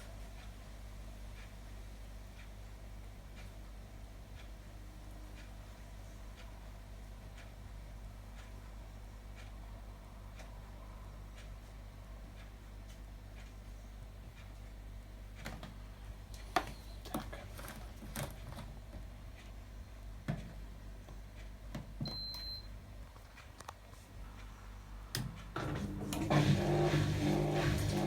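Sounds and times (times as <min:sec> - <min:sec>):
washing machine humming: 0:15.2 - 0:28.0.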